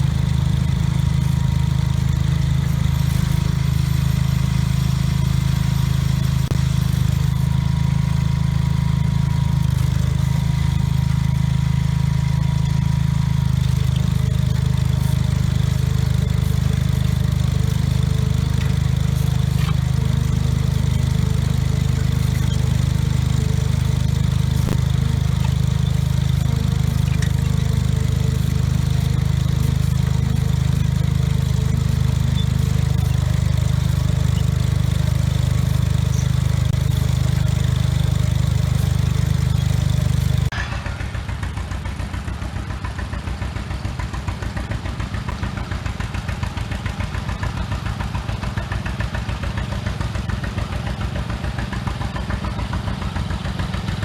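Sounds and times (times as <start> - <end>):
engine idling with even pulses: 0.0 - 54.0
garden tractor engine running: 0.0 - 54.0.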